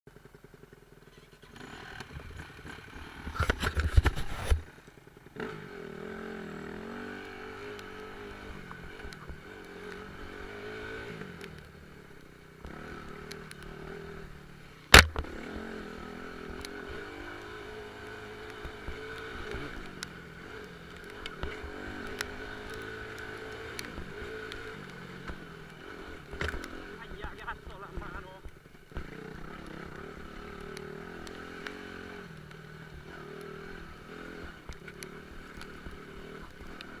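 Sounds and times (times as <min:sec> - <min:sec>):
motorcycle engine revving: 0:00.1 - 0:37.0
sharp knock: 0:14.9 - 0:15.2.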